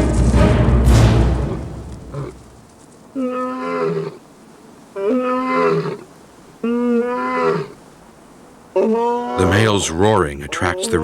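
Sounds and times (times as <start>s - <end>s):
lion roaring: 8.8s - 11.0s.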